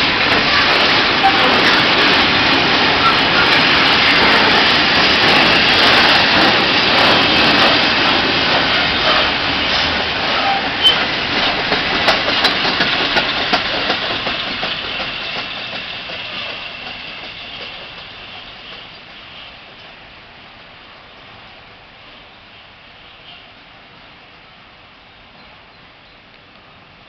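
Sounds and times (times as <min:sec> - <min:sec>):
freight wagons rumbling on rails: 0:00.0 - 0:20.0.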